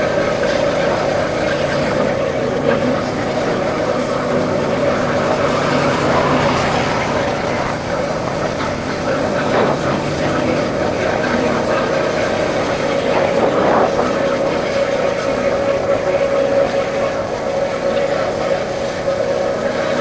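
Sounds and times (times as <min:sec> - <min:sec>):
motorcycle engine running: 0:00.0 - 0:14.0
rushing wind noise: 0:00.0 - 0:16.6.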